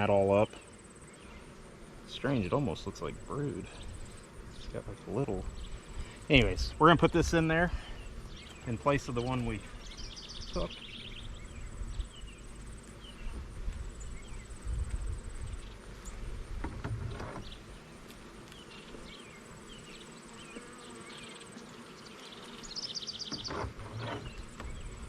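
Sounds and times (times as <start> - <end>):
bees buzzing: 0.0 - 25.0.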